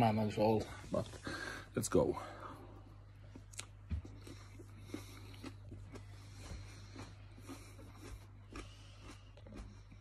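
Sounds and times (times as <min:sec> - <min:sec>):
mouth chewing clicks and smacks: 0:03.3 - 0:10.0.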